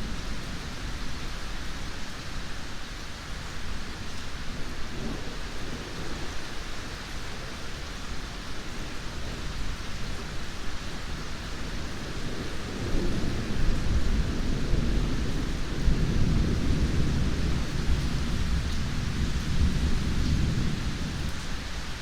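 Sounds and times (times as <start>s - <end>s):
steady rain: 0.0s - 22.0s
rumble of thunder: 8.7s - 22.0s.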